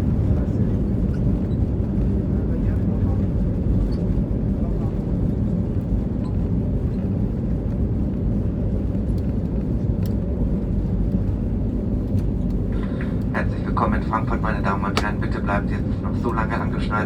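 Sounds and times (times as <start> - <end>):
aircraft cabin rumble: 0.0 - 17.0
faint clicks: 10.0 - 10.2.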